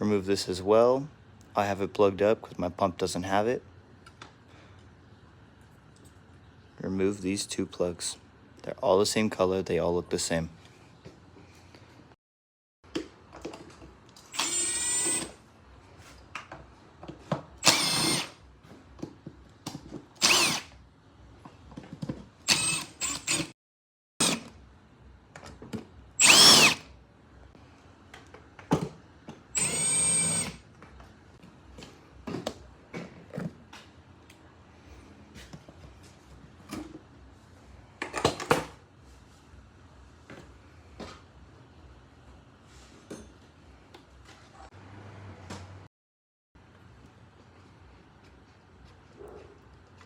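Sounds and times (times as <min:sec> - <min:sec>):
power drill running: 0:14.2 - 0:15.4, 0:17.6 - 0:18.4, 0:20.2 - 0:20.7, 0:22.4 - 0:23.5, 0:24.2 - 0:24.4, 0:26.2 - 0:26.9, 0:29.5 - 0:30.6.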